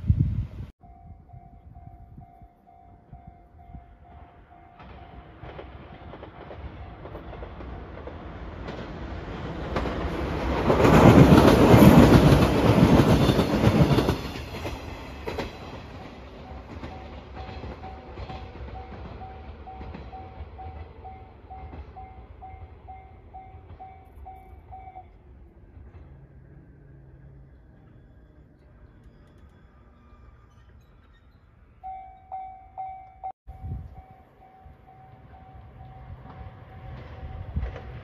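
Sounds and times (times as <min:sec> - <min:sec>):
electric train passing: 0:00.0 - 0:38.0
level-crossing bell dinging: 0:00.8 - 0:05.5, 0:16.4 - 0:25.2, 0:31.8 - 0:36.4
train wheel clatter: 0:04.3 - 0:26.8, 0:33.9 - 0:38.0.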